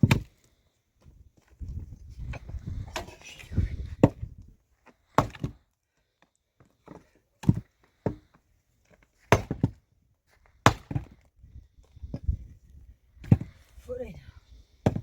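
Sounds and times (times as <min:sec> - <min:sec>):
wood being chopped: 0:00.0 - 0:00.3, 0:04.0 - 0:04.3, 0:05.1 - 0:05.6, 0:09.3 - 0:09.8, 0:10.6 - 0:11.2, 0:13.2 - 0:13.6.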